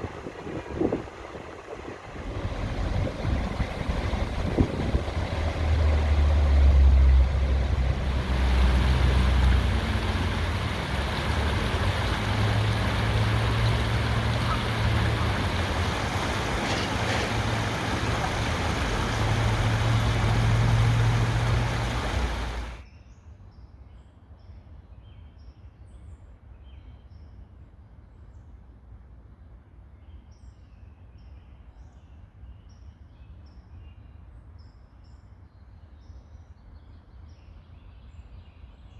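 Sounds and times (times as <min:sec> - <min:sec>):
loud rushing rumble: 0:00.0 - 0:22.8
small birds chirping: 0:00.0 - 0:22.8.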